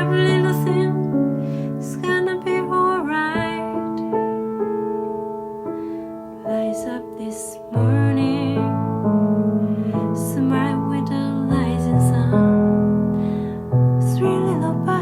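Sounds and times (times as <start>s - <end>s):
woman singing: 0.0s - 4.3s, 6.4s - 9.3s, 10.0s - 13.1s, 14.0s - 15.0s
soft piano chords: 0.0s - 15.0s.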